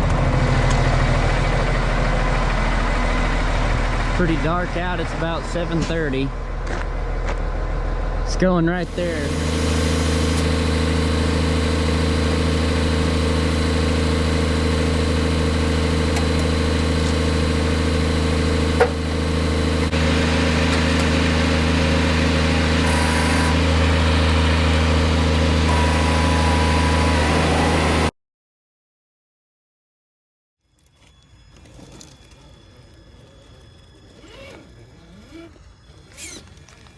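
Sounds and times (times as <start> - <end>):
diesel truck engine running: 0.0 - 28.1.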